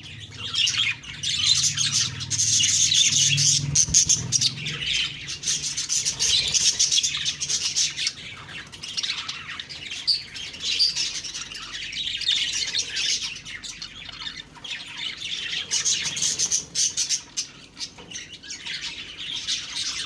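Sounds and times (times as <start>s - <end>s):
budgerigars chattering: 0.0s - 20.0s.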